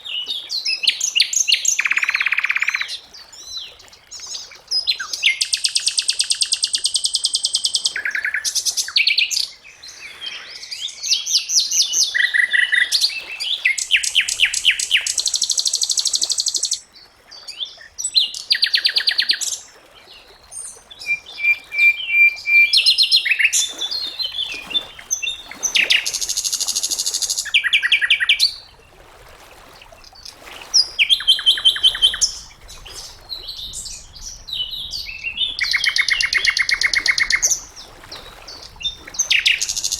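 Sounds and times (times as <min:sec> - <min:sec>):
bird singing trills: 0:21.0 - 0:28.6, 0:33.4 - 0:37.7.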